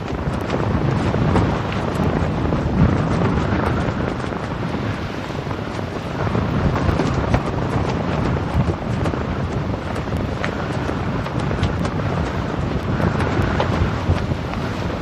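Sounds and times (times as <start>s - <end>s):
steady rushing noise: 0.0s - 15.0s
wind buffeting microphone: 0.0s - 15.0s.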